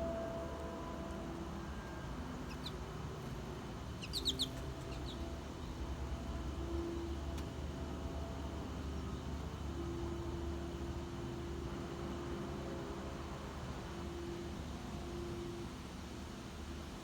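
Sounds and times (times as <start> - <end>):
low background hum: 0.0 - 17.0
small bird chirping: 2.5 - 2.8, 4.0 - 5.3.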